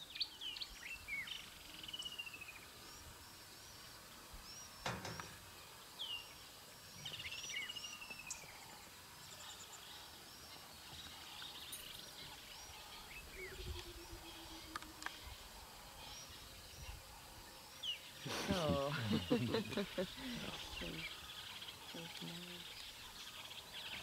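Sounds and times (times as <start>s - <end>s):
steady background hiss: 0.0s - 24.0s
birds chirping and whistling: 11.5s - 17.0s.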